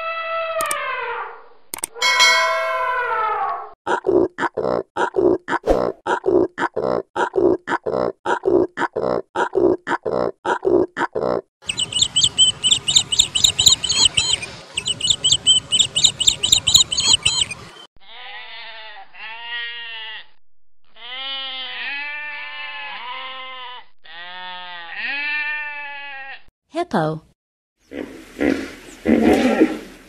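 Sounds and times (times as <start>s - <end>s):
rapid high-pitched chirping: 11.6s - 17.8s
animal bleating: 18.0s - 26.5s.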